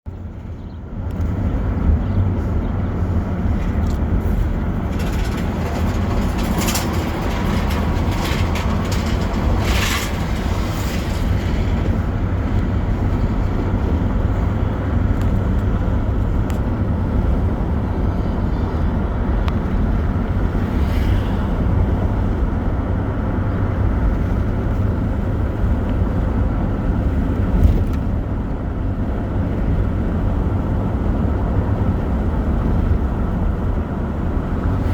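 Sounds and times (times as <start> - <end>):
road and wind noise: 0.0 - 34.9.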